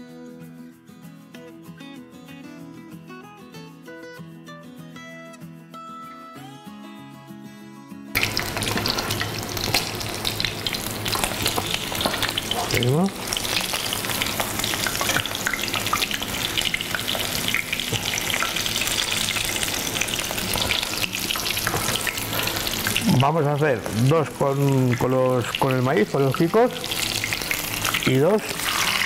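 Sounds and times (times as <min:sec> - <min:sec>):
guitar music: 0:00.0 - 0:29.0
food sizzling in hot oil: 0:08.2 - 0:29.0.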